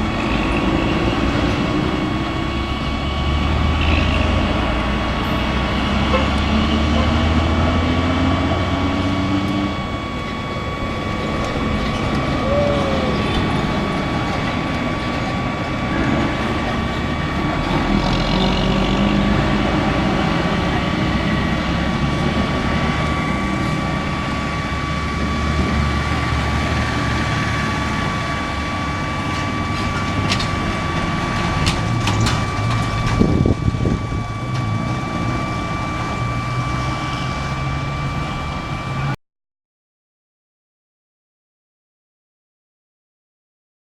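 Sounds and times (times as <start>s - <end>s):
heavy vehicle engine rumble: 0.0s - 39.2s
road noise: 0.0s - 39.2s.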